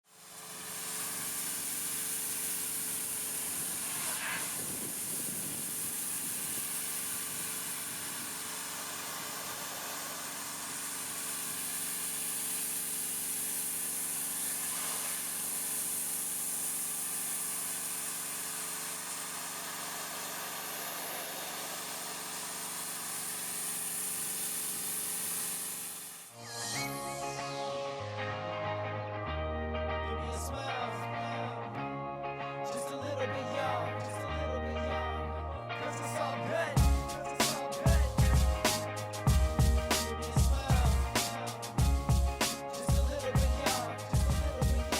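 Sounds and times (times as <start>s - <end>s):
pressure washer engine hum: 0.1s - 26.4s, 36.8s - 44.9s
water spray hissing: 0.2s - 26.4s, 36.8s - 41.8s.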